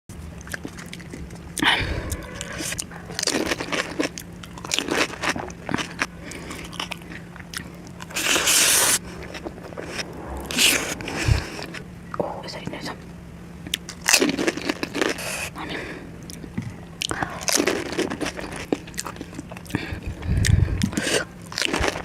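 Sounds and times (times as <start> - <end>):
crunchy food being chewed: 0.2 - 10.7, 13.7 - 22.0
rush of noise: 8.1 - 13.3.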